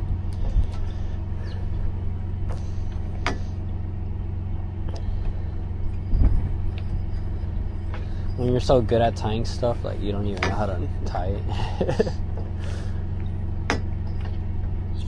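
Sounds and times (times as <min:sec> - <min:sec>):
truck engine idling: 0:00.0 - 0:15.0
light knocks and thump: 0:06.1 - 0:07.0, 0:10.3 - 0:10.7.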